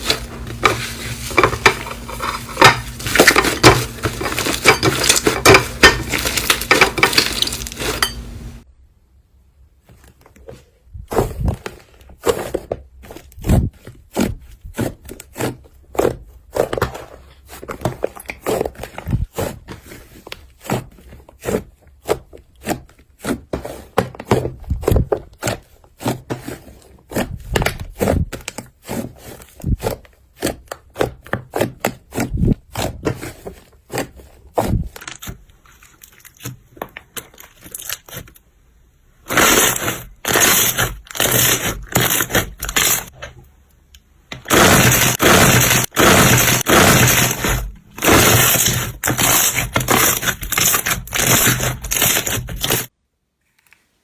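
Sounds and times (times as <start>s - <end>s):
crunchy slime crackling: 0.0s - 8.1s, 39.2s - 43.2s, 44.3s - 52.9s.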